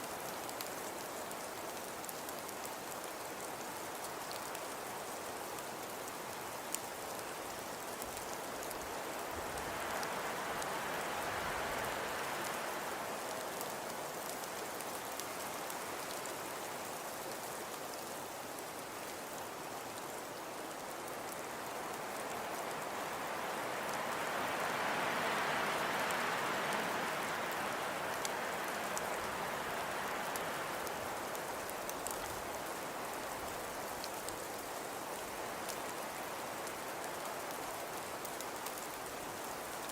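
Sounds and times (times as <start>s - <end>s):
hiss of wind-driven snow: 0.0s - 39.9s
faint ticks: 28.1s - 32.5s.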